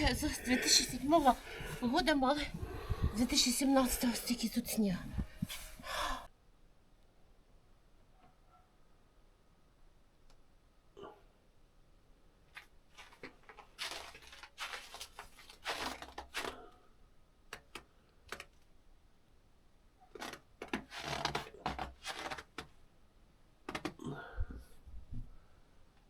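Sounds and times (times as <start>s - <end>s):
footsteps crunching through snow: 13.0s - 16.4s.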